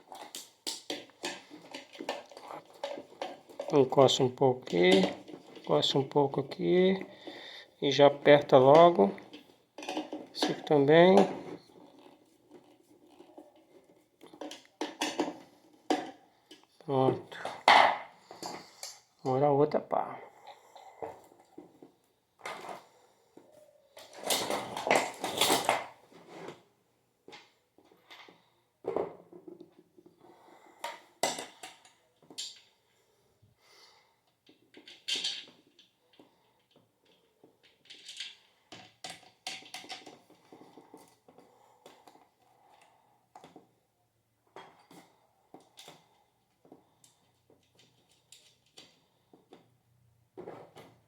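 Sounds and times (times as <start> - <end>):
metal parts and screws clinking: 34.4 - 40.2.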